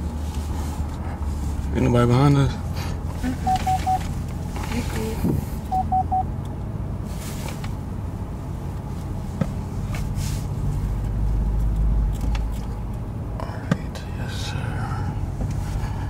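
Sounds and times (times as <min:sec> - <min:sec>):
car engine low rumble: 0:00.0 - 0:16.0
car warning beeps: 0:03.3 - 0:04.1, 0:05.6 - 0:06.3.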